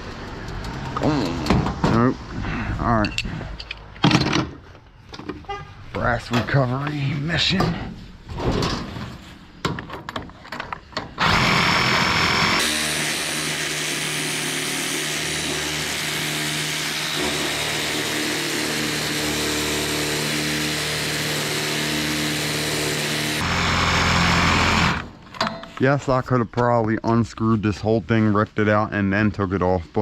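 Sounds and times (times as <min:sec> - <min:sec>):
power tool cutting metal: 0:11.2 - 0:25.1.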